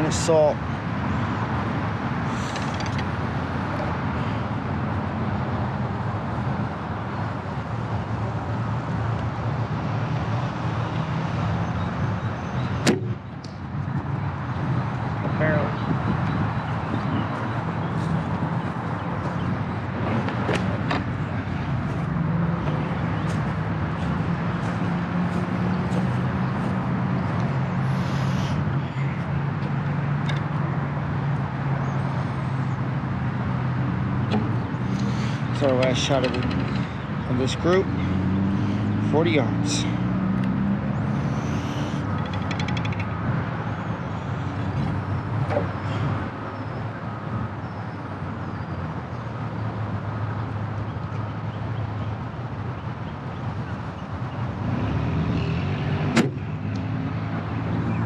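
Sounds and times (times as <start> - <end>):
arrow knock: 12.8 - 13.2.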